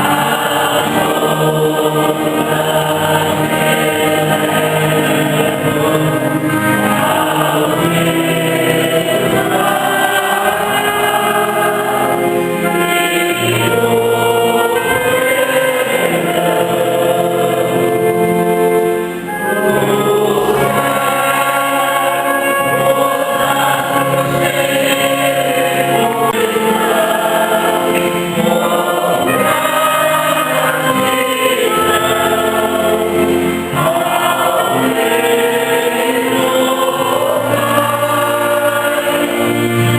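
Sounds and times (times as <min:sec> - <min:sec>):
choir singing a hymn: 0:00.0 - 0:39.9
instrumental accompaniment: 0:00.0 - 0:39.9.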